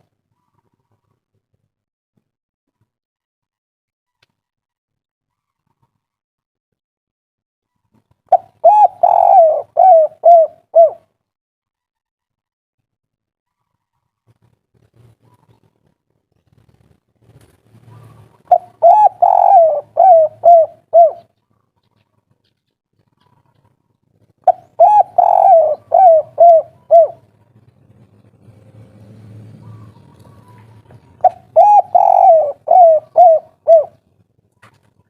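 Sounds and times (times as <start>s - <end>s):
dove cooing: 8.3s - 11.1s, 17.8s - 21.4s, 24.4s - 34.2s.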